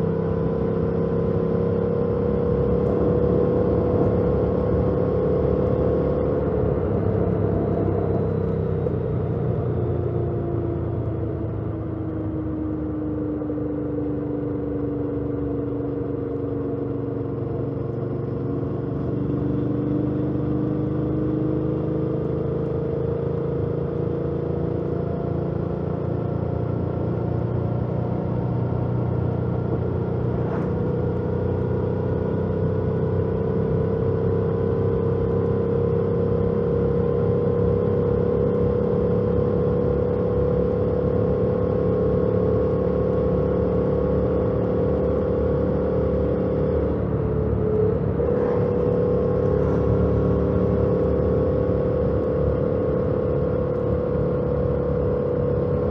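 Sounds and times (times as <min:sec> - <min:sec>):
motorcycle engine running: 0:24.4 - 0:55.9.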